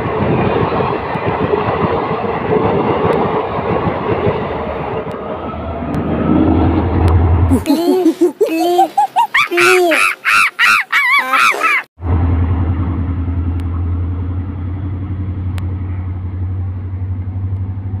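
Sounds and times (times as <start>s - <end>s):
diesel locomotive engine drone: 0.0s - 7.6s, 12.0s - 18.0s
high arching comic calls: 7.5s - 11.9s.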